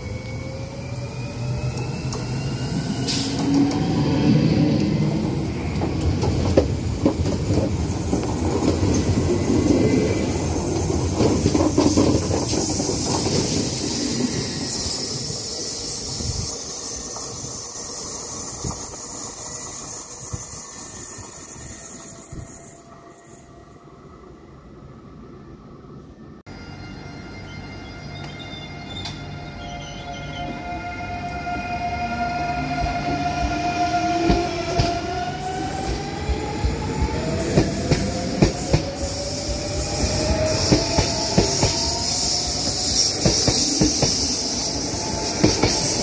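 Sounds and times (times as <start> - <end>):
train wheels clattering on rails: 4.7 - 13.9, 35.7 - 46.0.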